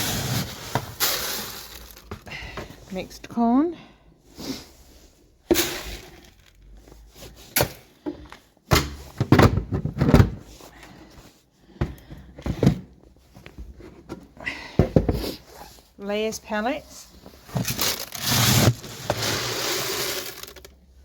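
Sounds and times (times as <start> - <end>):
corn pouring into container: 1.0 - 2.0, 17.8 - 20.8.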